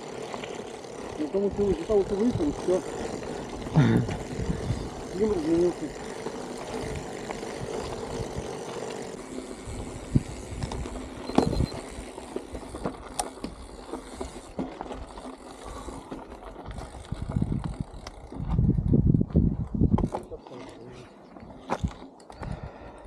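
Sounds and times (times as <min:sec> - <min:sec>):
bicycle clicks and knocks: 0:00.0 - 0:20.8, 0:21.4 - 0:23.0
wind buffeting microphone: 0:01.1 - 0:08.7, 0:09.5 - 0:12.0, 0:16.6 - 0:20.4.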